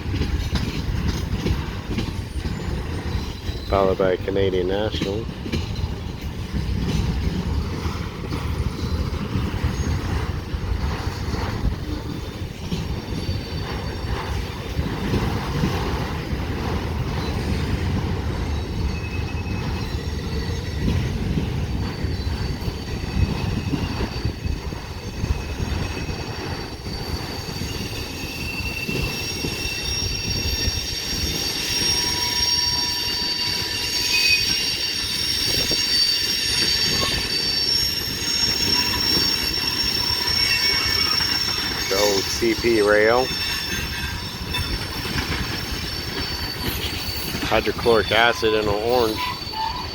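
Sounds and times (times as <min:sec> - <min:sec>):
steel wheels clattering over rails: 0:00.0 - 0:49.9
wheel flanges squealing: 0:00.1 - 0:49.9
freight cars rolling past: 0:36.7 - 0:49.9.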